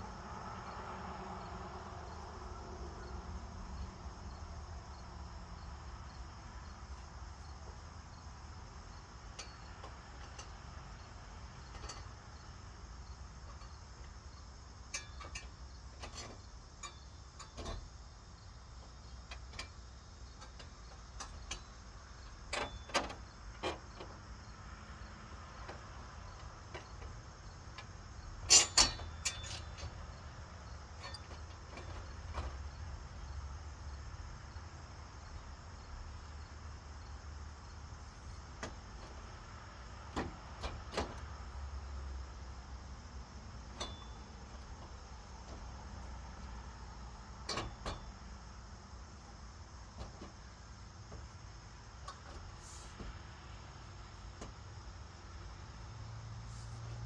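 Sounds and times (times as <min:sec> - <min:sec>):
knocks and clanks: 0:47.4 - 0:48.2, 0:49.9 - 0:51.3.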